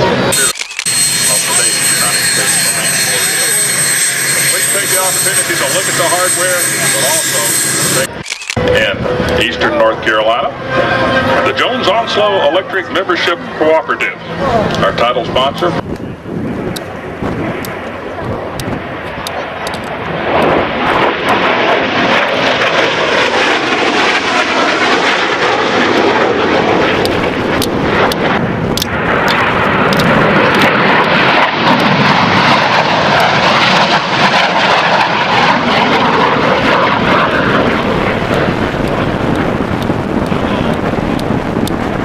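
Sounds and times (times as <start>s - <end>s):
aircraft engine rushing: 0.0s - 42.0s.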